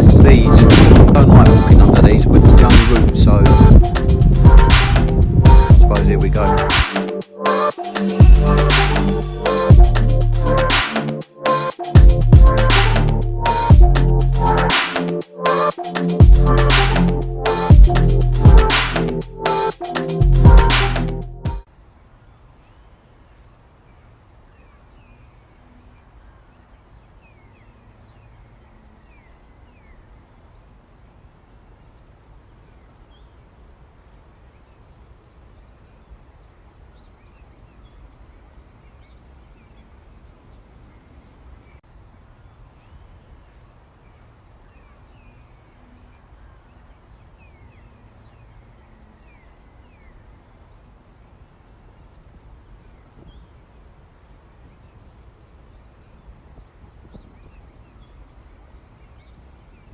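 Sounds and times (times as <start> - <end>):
low rumble: 0.0 - 6.8.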